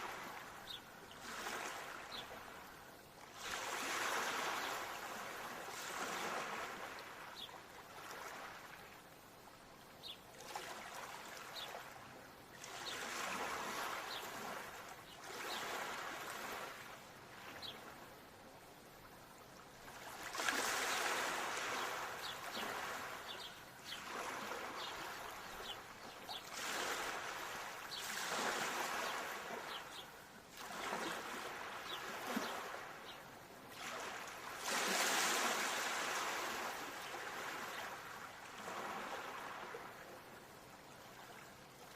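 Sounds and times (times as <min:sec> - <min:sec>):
ocean waves washing in: 0:03.4 - 0:08.8, 0:12.8 - 0:17.7, 0:19.8 - 0:40.2.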